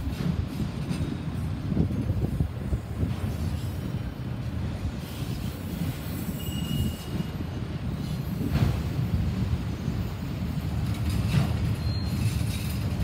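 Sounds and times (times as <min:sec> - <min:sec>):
train wheels rumbling on rail: 0:00.0 - 0:13.0
wheel squeal: 0:05.1 - 0:07.5, 0:11.2 - 0:12.9.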